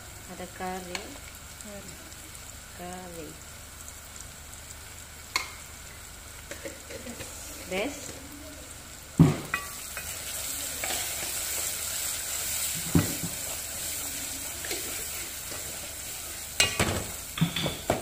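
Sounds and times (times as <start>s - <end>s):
onions sizzling in oil: 0.0s - 18.0s
spatula stirring in pot: 9.5s - 16.8s.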